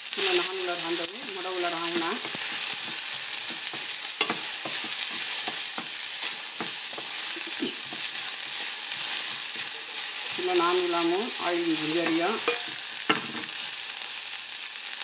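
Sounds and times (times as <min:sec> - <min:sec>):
okra sizzling in hot oil: 0:00.0 - 0:15.0
spatula scraping and knocking pan: 0:01.4 - 0:13.6.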